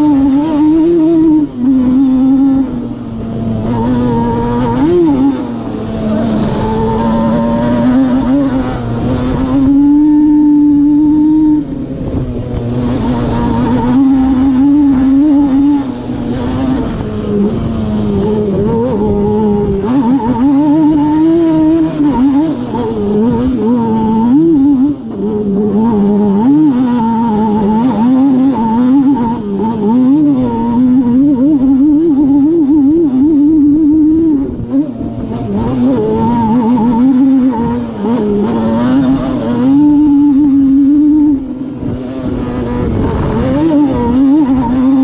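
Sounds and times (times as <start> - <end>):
two-stroke engine revving: 0.0 - 45.0.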